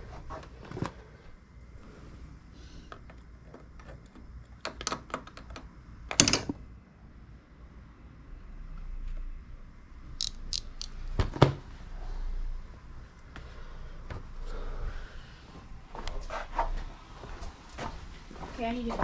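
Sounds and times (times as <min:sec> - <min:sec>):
sharp high clicks: 0:10.2 - 0:11.0.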